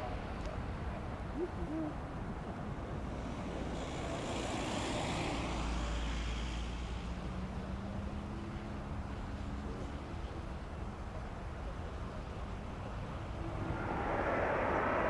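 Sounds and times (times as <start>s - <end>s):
jet airliner engine rushing: 13.0s - 15.0s.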